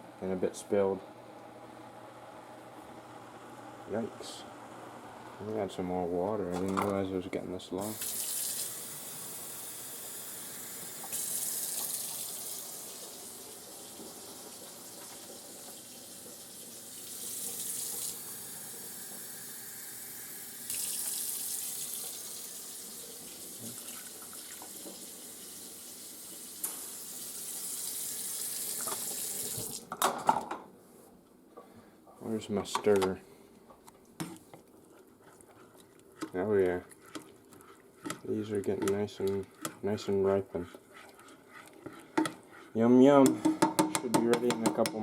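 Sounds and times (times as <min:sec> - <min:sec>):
kitchen tap running: 0:07.8 - 0:30.0.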